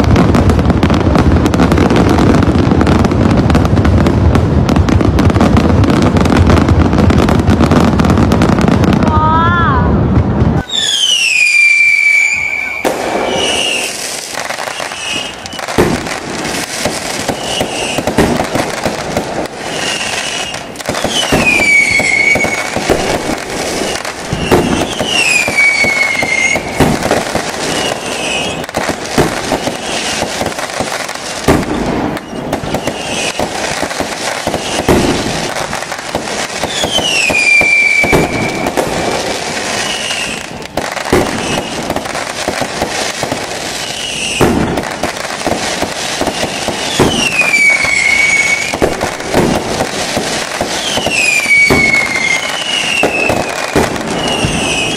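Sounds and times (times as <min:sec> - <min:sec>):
fireworks bangs: 0:00.0 - 0:54.9
fireworks crackling and popping: 0:00.0 - 0:54.9
falling firework whistle: 0:09.0 - 0:42.6, 0:43.2 - 0:54.9.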